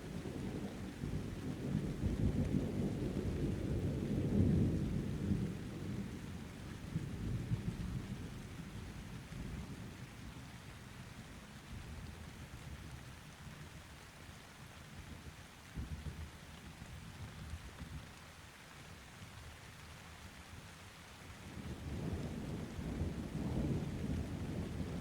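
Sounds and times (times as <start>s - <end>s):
distant thunder rumbling: 0.2s - 8.6s, 21.6s - 25.0s
rain hissing: 14.6s - 25.0s.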